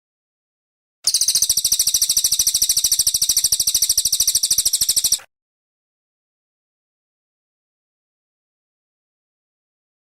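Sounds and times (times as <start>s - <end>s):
bird singing a high-pitched trill: 1.1s - 5.3s.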